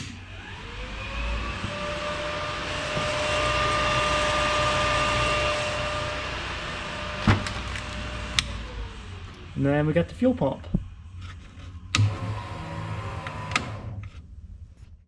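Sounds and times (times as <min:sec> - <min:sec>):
electric cooling fans whirring: 0:00.0 - 0:14.1.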